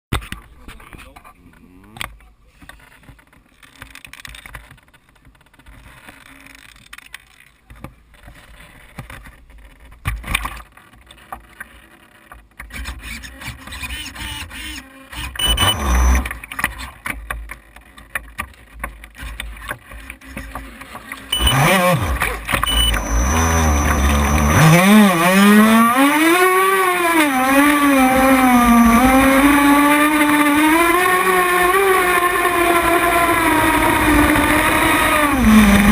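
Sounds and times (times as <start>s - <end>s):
small boat engine at high revs: 12.8s - 16.5s, 20.2s - 35.9s.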